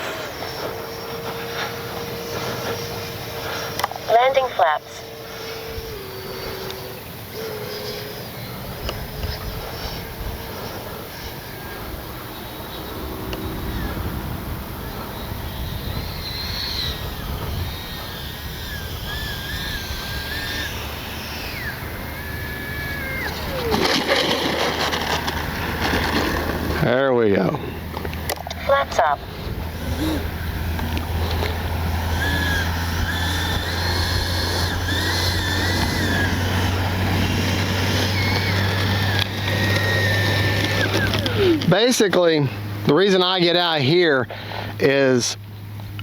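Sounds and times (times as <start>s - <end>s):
electric ducted fan whining: 0.0s - 46.0s
wind rumble on microphone: 8.2s - 26.8s.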